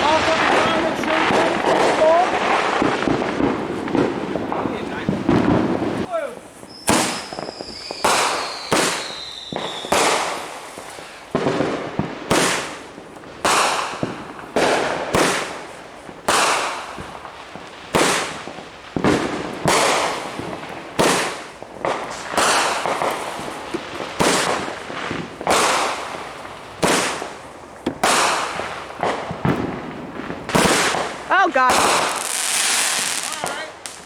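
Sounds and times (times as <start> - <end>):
fireworks bangs: 0.0 - 34.0
falling firework whistle: 6.6 - 10.4.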